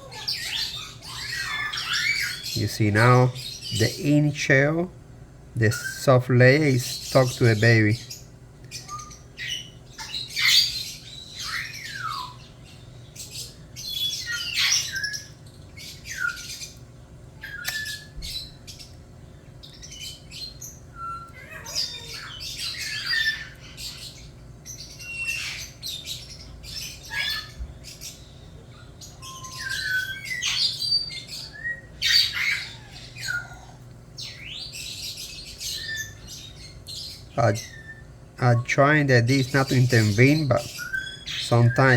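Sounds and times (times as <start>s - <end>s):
chick squawking: 0.0s - 4.8s, 37.3s - 41.9s.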